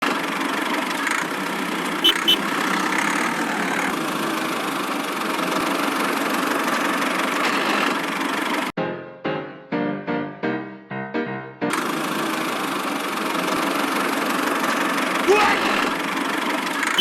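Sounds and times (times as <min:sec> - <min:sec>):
small motor running: 0:11.7 - 0:15.2.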